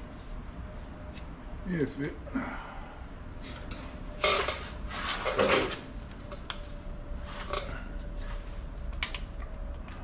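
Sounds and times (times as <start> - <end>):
metal tools clattering: 3.6 - 5.8.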